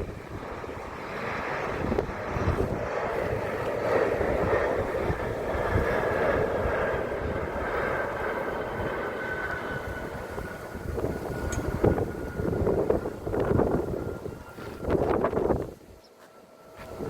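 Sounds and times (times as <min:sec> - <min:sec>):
wind buffeting microphone: 0:00.0 - 0:16.1, 0:16.7 - 0:17.0
airliner engines rumbling: 0:00.0 - 0:17.0
high engine whine: 0:00.0 - 0:17.0.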